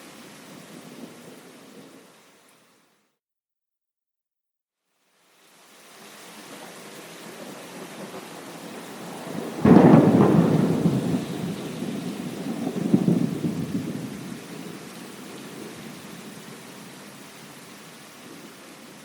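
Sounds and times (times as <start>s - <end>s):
steady rain: 0.0s - 3.1s, 4.9s - 19.0s
thunderclap and rumble: 8.0s - 16.4s.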